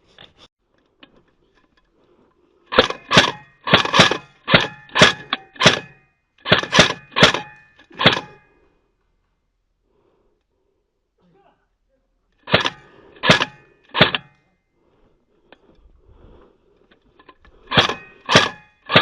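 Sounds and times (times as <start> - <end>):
airsoft gun shots: 2.8 - 8.4, 12.5 - 14.3, 17.7 - 19.0.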